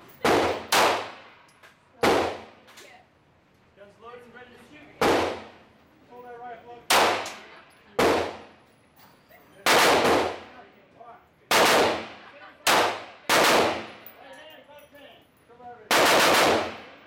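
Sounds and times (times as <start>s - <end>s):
pistol gunshots with echo: 0.2s - 1.4s, 6.9s - 8.4s, 9.6s - 10.5s, 11.5s - 14.0s, 15.9s - 17.0s.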